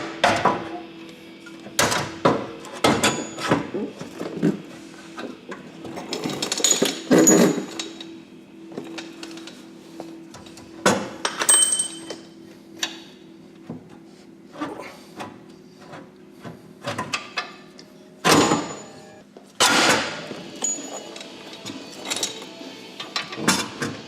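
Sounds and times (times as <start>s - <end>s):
metal tools clanking: 5.9s - 8.2s, 11.3s - 12.2s.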